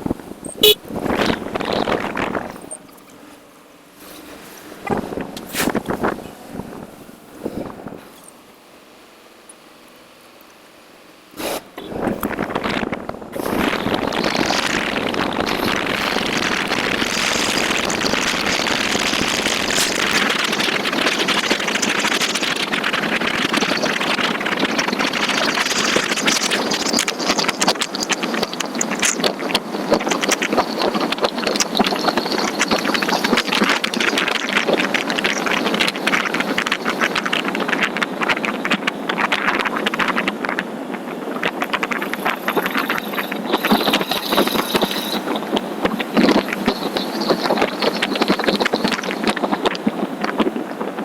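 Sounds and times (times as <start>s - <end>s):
motorcycle engine: 0.0s - 3.5s, 11.7s - 22.8s
wind rushing over microphone: 0.0s - 8.5s, 11.4s - 51.0s.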